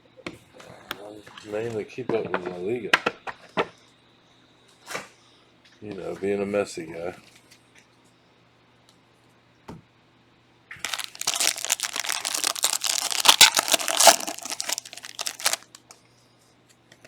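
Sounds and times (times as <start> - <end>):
wrapper crinkling and tearing: 10.8 - 16.0.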